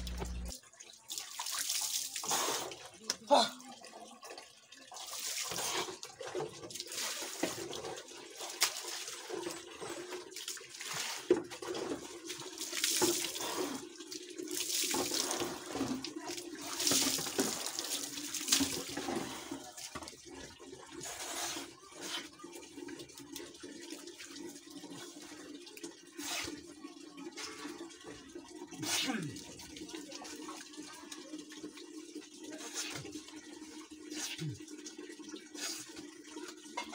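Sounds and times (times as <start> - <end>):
water splashing on concrete floor: 0.0 - 3.8, 5.0 - 9.3, 12.3 - 13.8, 14.4 - 20.1.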